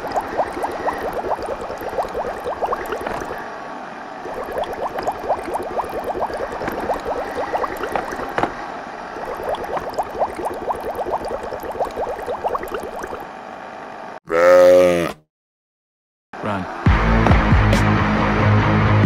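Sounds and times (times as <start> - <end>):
coffee machine gurgling: 0.0 - 3.4, 4.3 - 8.4, 9.2 - 13.2.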